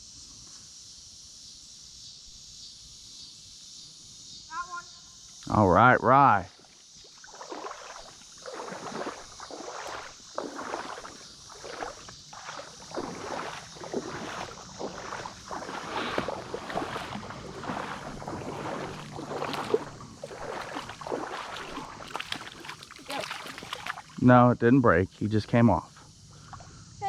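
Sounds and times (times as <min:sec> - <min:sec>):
legs wading through shallow water: 0:06.5 - 0:24.2.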